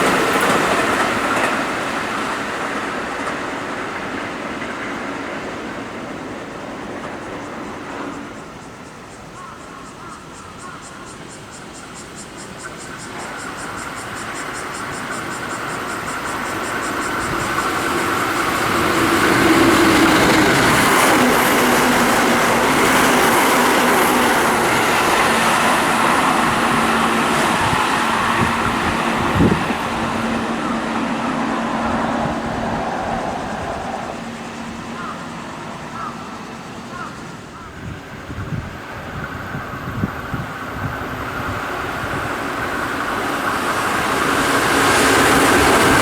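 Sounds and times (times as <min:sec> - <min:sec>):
train wheels on rails: 0:00.0 - 0:46.0
train motor hum: 0:12.5 - 0:46.0.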